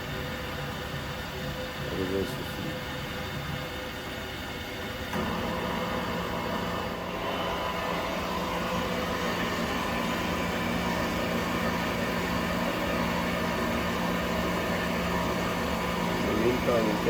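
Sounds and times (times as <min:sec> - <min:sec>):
wood lathe humming and whirring: 0:05.2 - 0:17.0.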